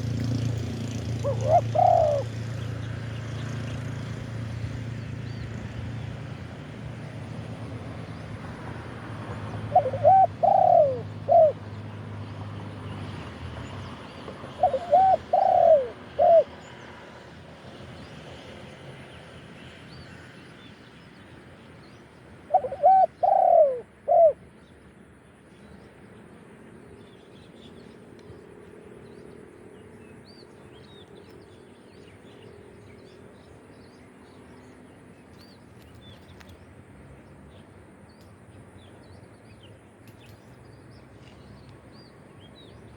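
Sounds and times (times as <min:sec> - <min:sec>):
dove cooing: 0:01.2 - 0:02.5, 0:09.5 - 0:11.8, 0:14.5 - 0:16.6, 0:22.5 - 0:24.4.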